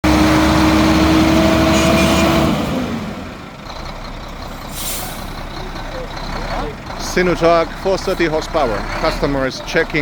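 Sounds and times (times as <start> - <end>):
truck diesel engine running: 0.0 - 10.0
hiss of released air: 4.7 - 5.3.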